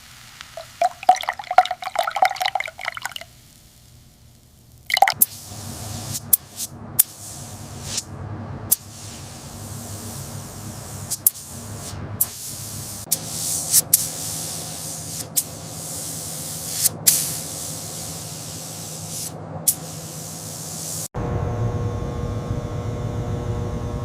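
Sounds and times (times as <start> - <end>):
spray hissing: 5.2 - 8.1, 8.7 - 21.1.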